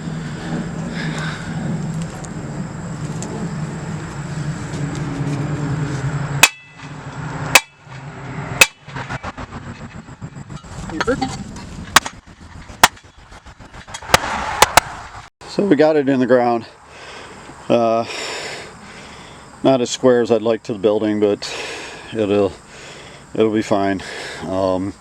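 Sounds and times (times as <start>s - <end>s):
steady low hum: 0.0s - 15.6s
hammer striking wooden block: 6.4s - 6.9s, 7.5s - 7.8s, 8.6s - 8.8s.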